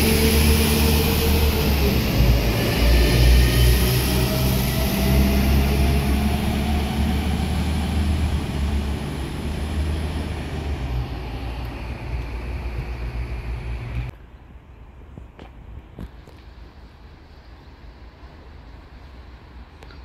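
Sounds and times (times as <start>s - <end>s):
wheels rushing on rails: 0.0s - 14.1s
train engine hum: 0.0s - 20.0s.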